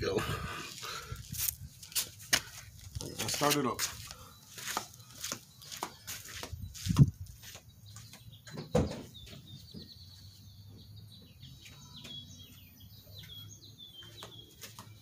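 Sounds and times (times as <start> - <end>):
faint bird chirps: 4.0 - 15.0.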